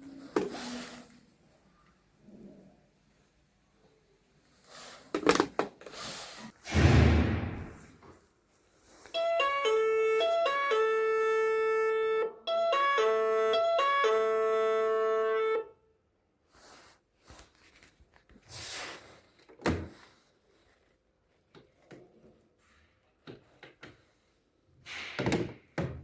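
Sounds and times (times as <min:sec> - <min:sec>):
electronic doorbell chime: 0:09.2 - 0:15.7.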